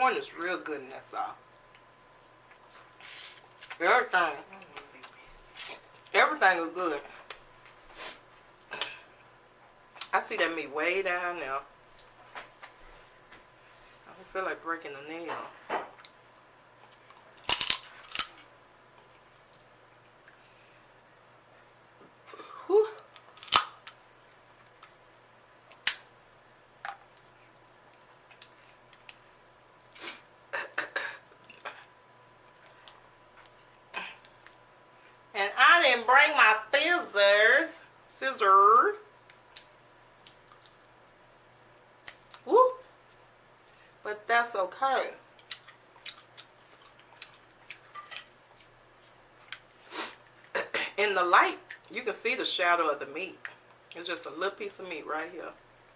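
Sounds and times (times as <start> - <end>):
crab shell cracking by hand: 17.1 - 18.4, 23.2 - 24.0, 39.2 - 40.8, 41.5 - 42.5.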